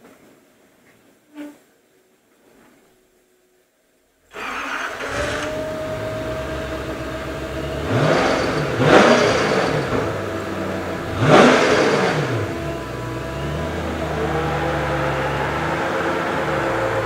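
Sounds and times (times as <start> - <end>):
loud car engine revving: 4.4 - 17.0.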